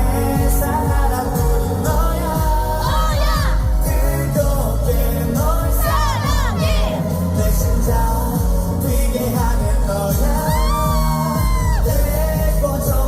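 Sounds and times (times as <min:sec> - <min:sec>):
man singing amplified: 0:00.0 - 0:13.0
pop backing track with beat: 0:00.0 - 0:13.0.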